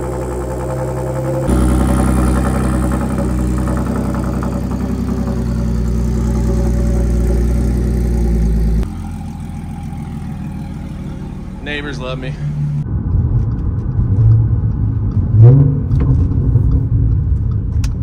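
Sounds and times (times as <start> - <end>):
car engine idling loudly: 0.0 - 12.8.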